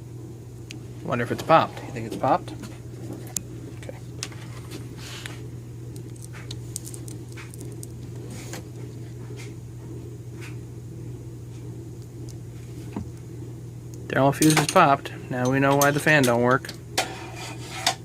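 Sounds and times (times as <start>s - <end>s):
steady low hum: 0.0s - 18.0s
small parts clicking and rustling: 5.9s - 8.1s.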